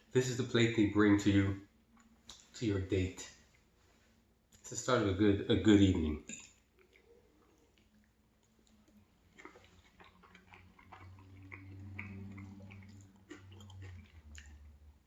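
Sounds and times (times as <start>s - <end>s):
person chewing food: 6.3s - 15.0s.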